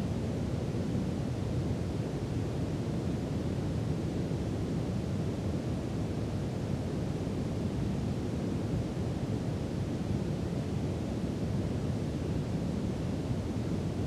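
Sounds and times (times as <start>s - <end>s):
brown noise hiss: 0.0s - 14.0s.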